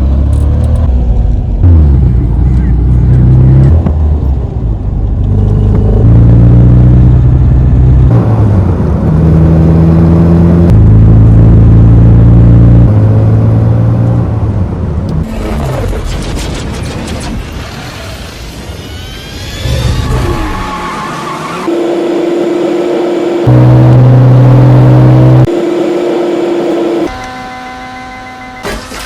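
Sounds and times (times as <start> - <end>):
car engine running: 21.7 - 27.1.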